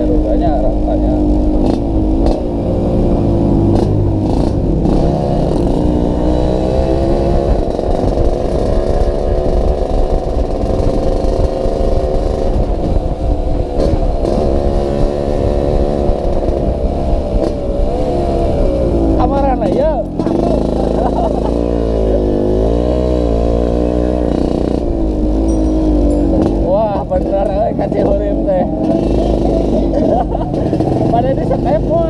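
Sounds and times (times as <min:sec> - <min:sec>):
motorcycle engine running: 0:00.0 - 0:32.0
exhaust rattling: 0:24.3 - 0:32.0.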